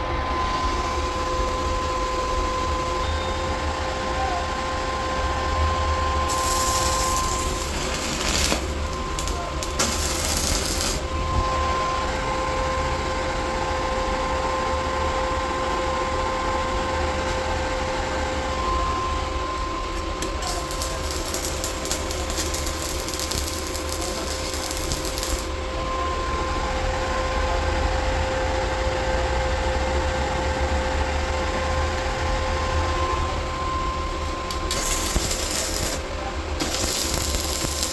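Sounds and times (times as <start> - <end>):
machine hum with whining tone: 0.0 - 37.9
bursts of hiss: 6.3 - 11.1, 34.6 - 36.0, 36.6 - 37.9.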